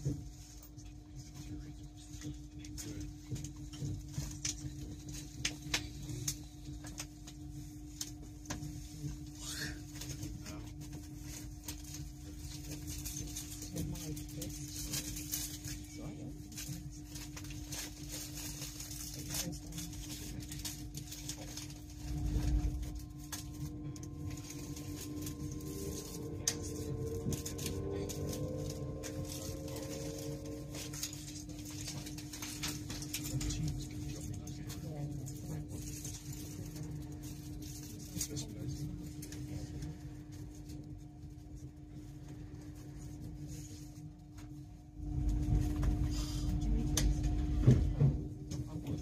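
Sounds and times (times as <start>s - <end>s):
steady hum: 0.0s - 49.0s
train rumble: 0.0s - 49.0s
train whine rising in pitch: 22.0s - 32.8s.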